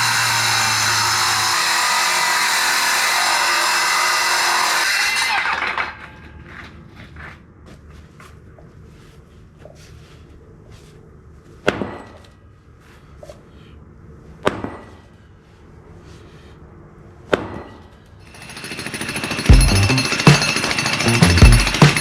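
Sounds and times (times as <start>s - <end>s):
concrete saw: 0.0s - 6.7s, 18.2s - 22.0s
sledgehammer blows on concrete: 18.9s - 22.0s.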